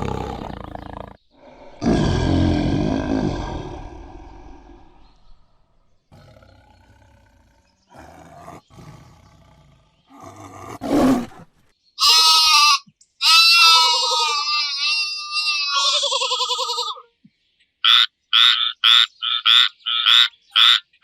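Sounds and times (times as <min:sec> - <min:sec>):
roar-like animal call: 0:00.0 - 0:11.6
low rough animal calls: 0:00.0 - 0:12.1.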